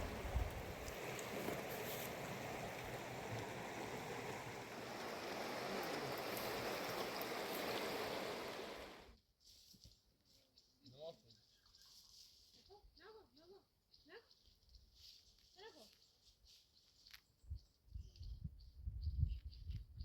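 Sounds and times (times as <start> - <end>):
river rushing: 0.0 - 9.1.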